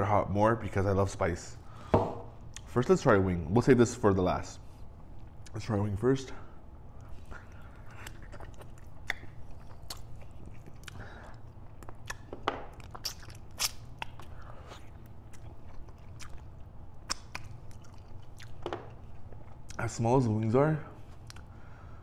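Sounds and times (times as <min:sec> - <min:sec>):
person chewing chicken wing: 0:07.0 - 0:19.8
sharp mouth clicks: 0:17.0 - 0:18.6.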